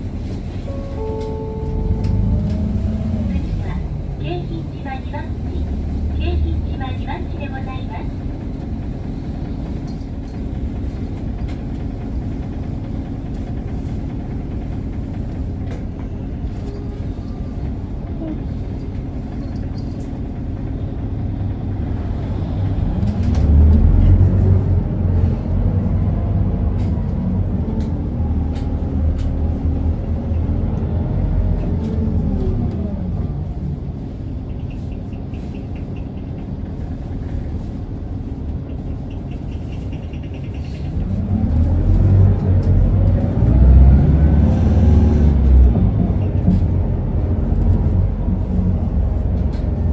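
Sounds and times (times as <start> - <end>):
bus diesel engine revving: 0.0 - 9.8, 20.2 - 34.3, 40.4 - 49.9.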